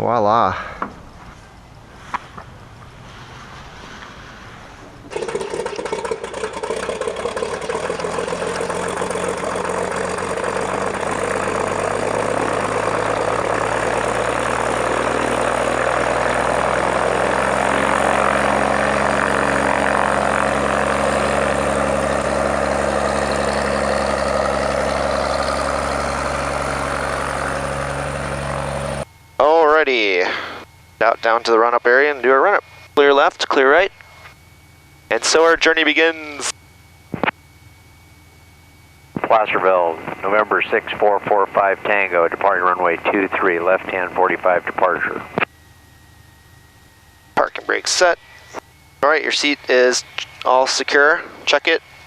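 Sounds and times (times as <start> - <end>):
propeller plane engine droning: 0.0 - 52.0.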